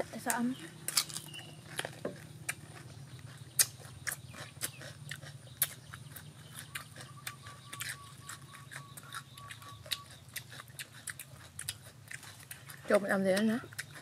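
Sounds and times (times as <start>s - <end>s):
wet mouth smacking and chewing: 0.6s - 14.0s.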